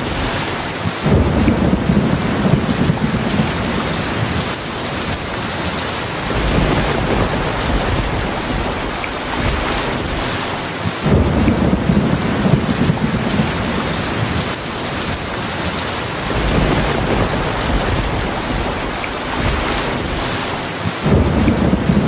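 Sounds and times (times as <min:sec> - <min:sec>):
heavy rain: 0:00.0 - 0:22.0
thunder rolling: 0:01.0 - 0:22.0.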